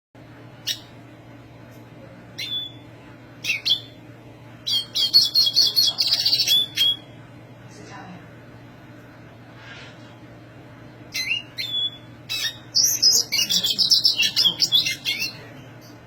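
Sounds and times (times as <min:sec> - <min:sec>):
steady low hum: 0:00.2 - 0:16.0
bird calls and twittering song: 0:03.4 - 0:03.9, 0:04.7 - 0:07.1, 0:11.1 - 0:16.0.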